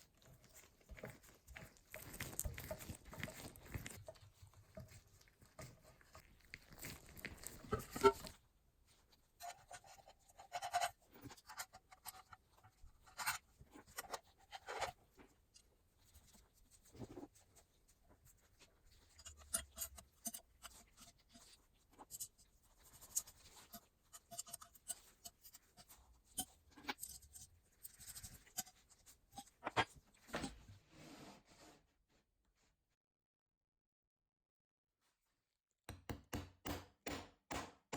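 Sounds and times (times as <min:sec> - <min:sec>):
scratchy rubbing: 0:00.1 - 0:08.4.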